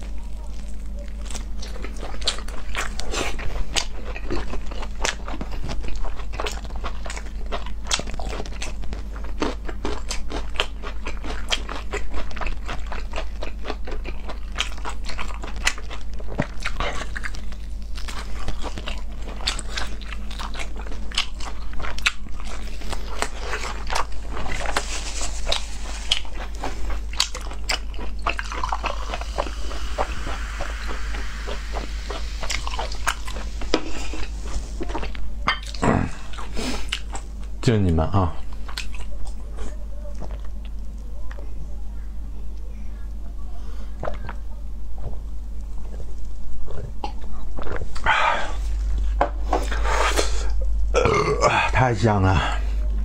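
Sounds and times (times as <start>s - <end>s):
close biting and chewing: 0.0s - 37.5s, 38.5s - 41.4s.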